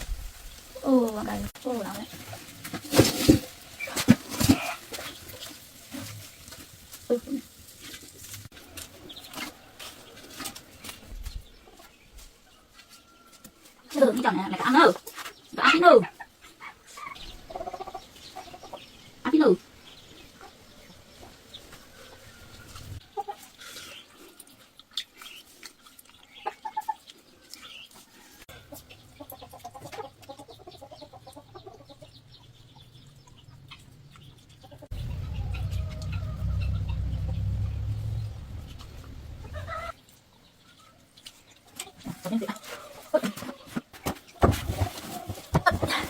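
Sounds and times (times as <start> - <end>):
chickens clucking: 13.6 - 46.0
loud low rumble: 34.9 - 39.9.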